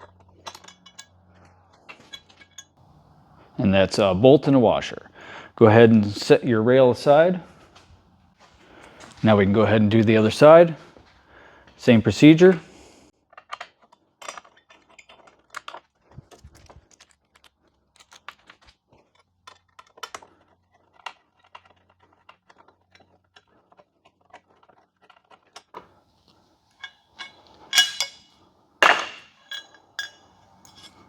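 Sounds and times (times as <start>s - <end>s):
loud metal clanks: 26.8s - 31.0s.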